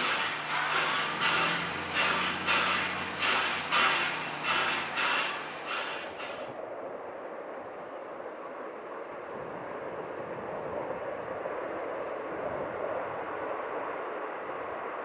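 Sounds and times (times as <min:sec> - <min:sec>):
train rumbling past: 0:00.0 - 0:06.6.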